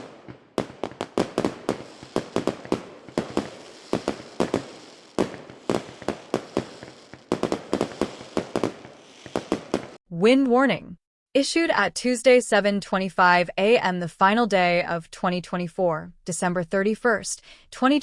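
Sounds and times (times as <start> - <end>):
sharp echoing bangs and pops: 0.0 - 10.0.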